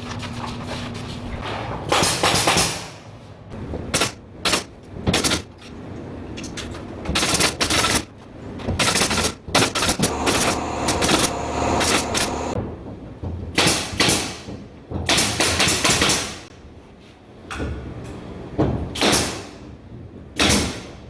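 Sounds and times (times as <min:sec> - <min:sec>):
nail gun firing: 0:01.9 - 0:03.0, 0:03.9 - 0:05.5, 0:07.1 - 0:08.1, 0:08.7 - 0:12.4, 0:13.6 - 0:14.5, 0:15.1 - 0:16.5, 0:19.0 - 0:19.5, 0:20.4 - 0:20.9.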